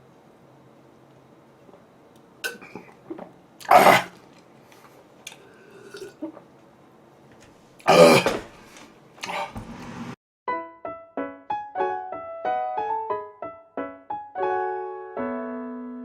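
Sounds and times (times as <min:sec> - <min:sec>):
man coughing: 0:03.6 - 0:04.2, 0:07.9 - 0:08.5.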